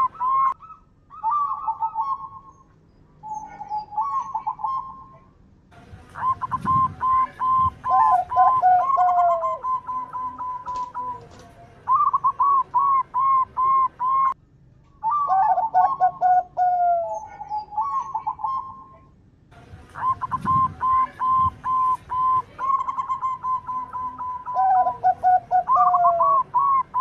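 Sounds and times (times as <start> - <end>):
doves cooing: 0.0 - 5.3, 6.1 - 14.4, 15.0 - 19.1, 19.9 - 27.0.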